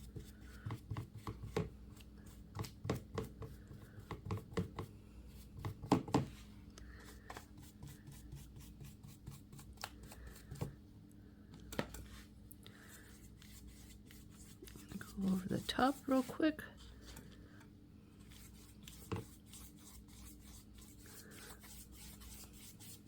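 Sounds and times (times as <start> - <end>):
glue brush tapping and scraping: 0.0 - 6.4, 18.3 - 23.0.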